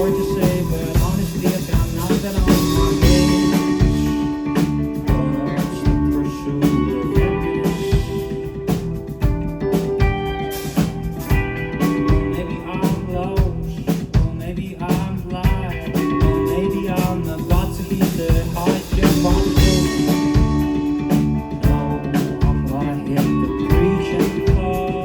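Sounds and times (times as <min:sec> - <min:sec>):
drum kit beat: 0:00.0 - 0:25.0
electric guitars: 0:00.0 - 0:25.0
sung or guitar melody: 0:00.0 - 0:25.0.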